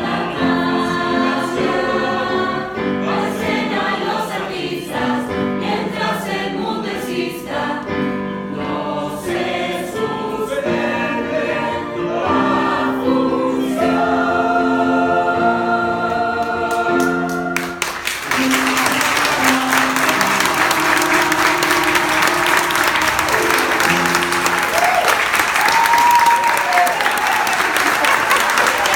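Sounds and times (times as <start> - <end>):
youth choir singing: 0.0 - 24.4
audience applause: 16.7 - 28.9.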